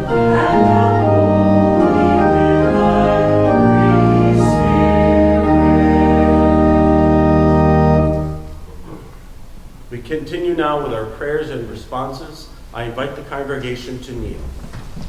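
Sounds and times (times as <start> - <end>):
organ playing sustained chords: 0.0 - 8.9.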